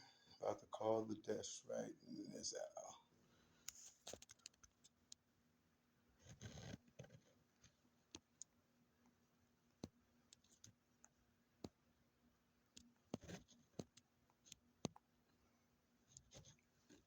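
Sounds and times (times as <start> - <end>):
faint steady room hum: 0.0 - 17.0
faint clicks: 3.6 - 5.2.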